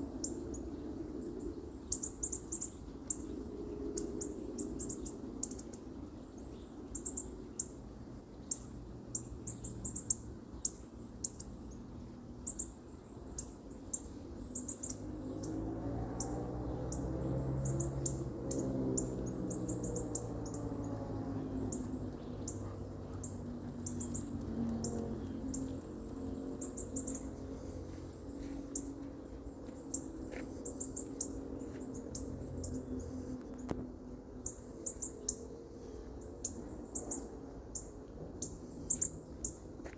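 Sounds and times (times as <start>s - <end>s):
low steady hum: 16.2s - 39.9s.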